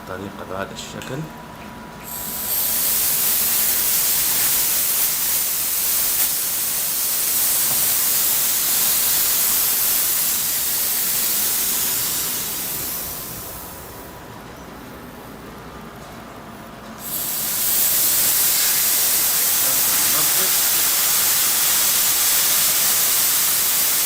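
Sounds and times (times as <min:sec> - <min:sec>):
pressurised gas hissing: 0:02.0 - 0:14.2, 0:17.0 - 0:24.0.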